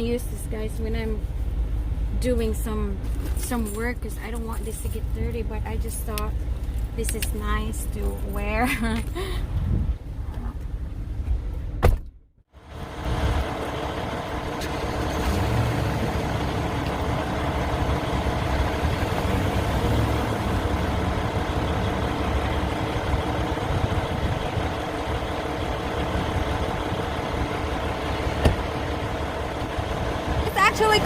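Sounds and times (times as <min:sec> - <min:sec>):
diesel truck engine running: 0:12.6 - 0:31.0.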